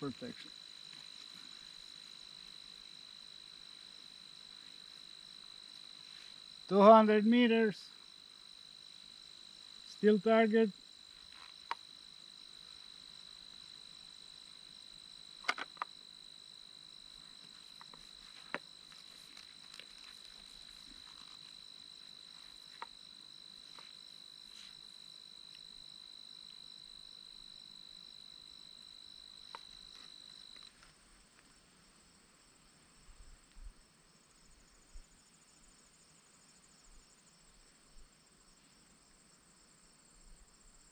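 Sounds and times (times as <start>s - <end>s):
cricket trilling: 0.0s - 30.9s.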